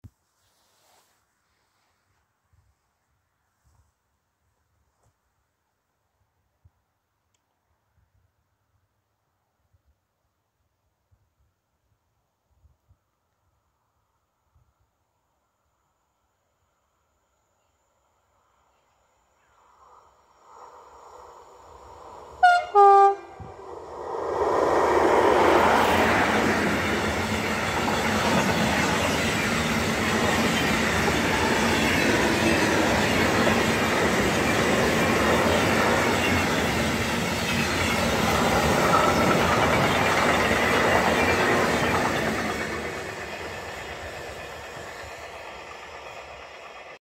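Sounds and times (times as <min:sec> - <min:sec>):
two-tone locomotive horn: 0:22.4 - 0:23.6
train wagons rolling over rails: 0:24.0 - 0:47.0.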